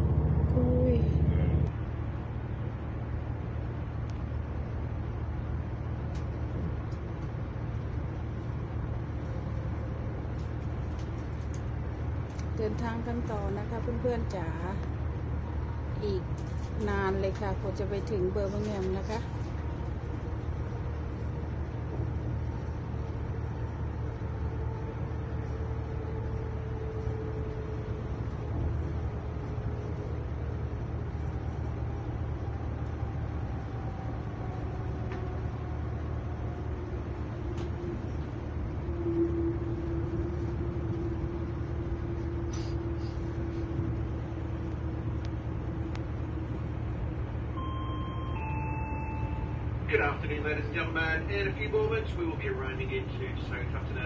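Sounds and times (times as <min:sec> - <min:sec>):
hum sinking in pitch: 0:00.0 - 0:03.4
faint whine: 0:00.0 - 0:54.0
train low rumble: 0:00.0 - 0:54.0
public-address chime: 0:47.6 - 0:50.2.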